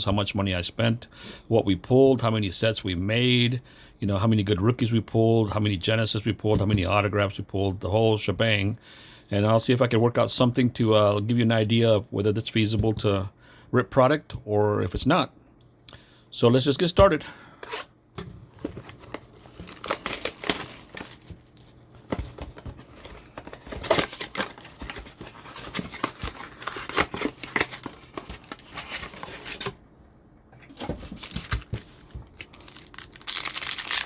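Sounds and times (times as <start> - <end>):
packaging tearing and crinkling: 18.8 - 29.8, 31.0 - 34.0.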